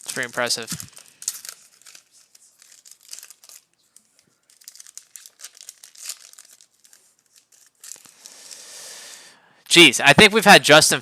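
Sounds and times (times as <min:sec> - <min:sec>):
cards rustling: 0:00.0 - 0:08.7
wrapper crinkling: 0:00.0 - 0:08.7.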